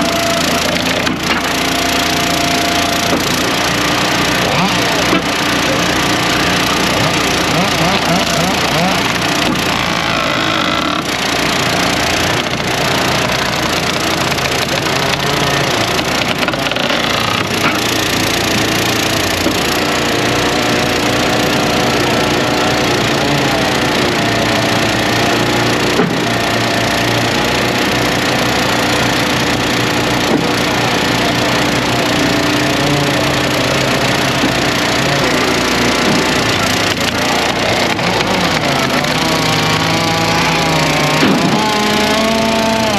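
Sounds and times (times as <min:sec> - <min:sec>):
gas engine running under load: 0:00.0 - 0:42.9
wood cracking and splintering: 0:00.1 - 0:42.9.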